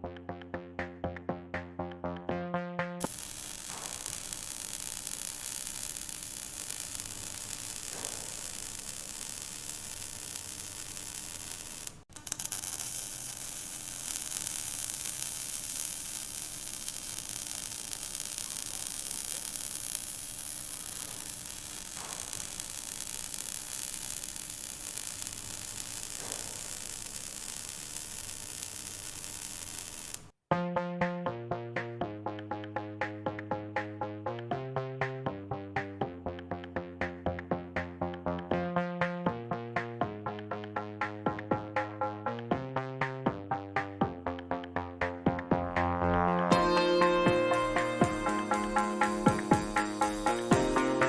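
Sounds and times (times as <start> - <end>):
welding arc crackling hiss: 3.0 - 30.4, 46.5 - 51.0.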